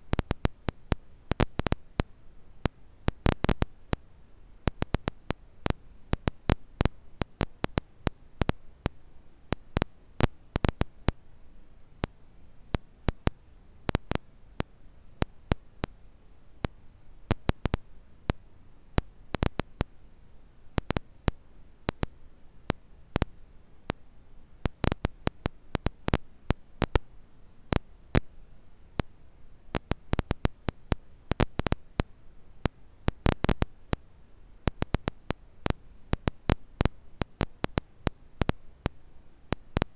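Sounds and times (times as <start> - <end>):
faint steady hiss: 0.0 - 39.9.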